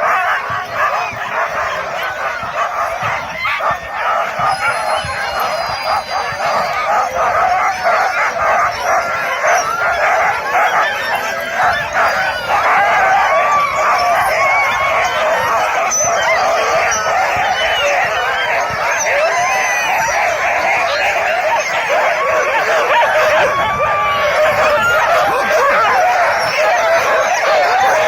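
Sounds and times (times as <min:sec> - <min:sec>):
dogs howling together: 0:00.0 - 0:28.0.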